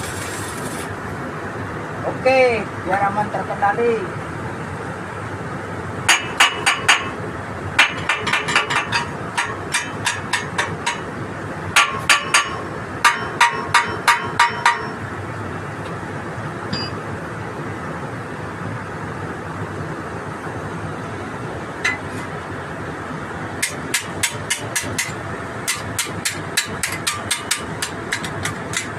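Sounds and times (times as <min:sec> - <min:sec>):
hammer tapping on metal: 0:06.1 - 0:07.1, 0:07.8 - 0:11.1, 0:11.8 - 0:15.0, 0:23.6 - 0:28.9.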